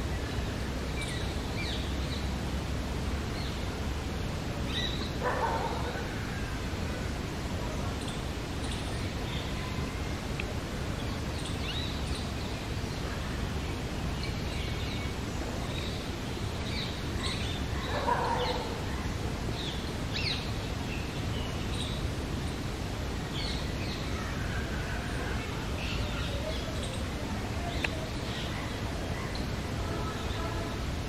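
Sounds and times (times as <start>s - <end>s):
small birds chirping: 25.3s - 30.5s.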